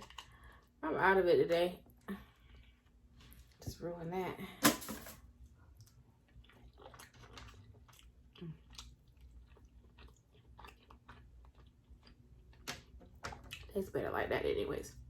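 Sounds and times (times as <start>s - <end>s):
faint chewing: 0.0s - 0.8s, 5.6s - 13.8s.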